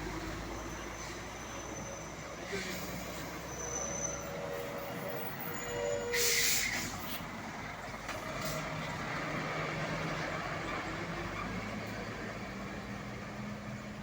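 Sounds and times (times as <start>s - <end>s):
diesel engine rumbling: 0.0s - 14.0s
truck air brakes hissing: 0.6s - 7.3s.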